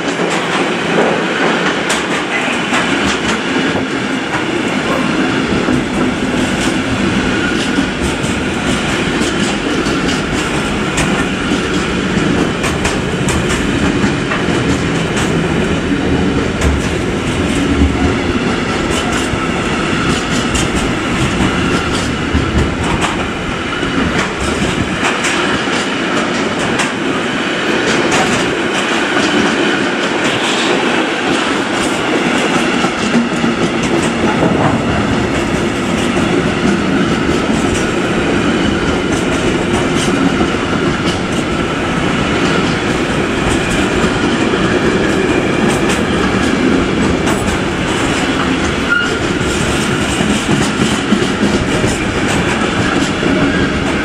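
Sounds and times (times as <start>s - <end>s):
freight train rolling rumble: 0.0s - 54.0s
wheels clicking over rail joints: 0.0s - 54.0s.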